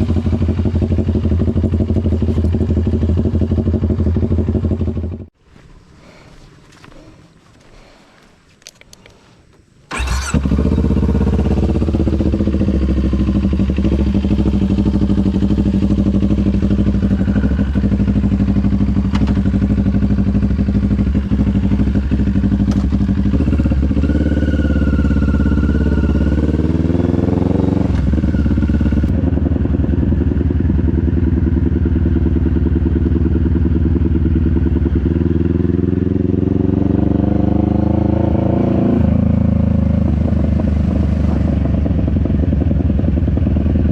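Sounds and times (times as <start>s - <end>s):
motorcycle engine running: 0.0s - 5.4s, 9.9s - 43.9s.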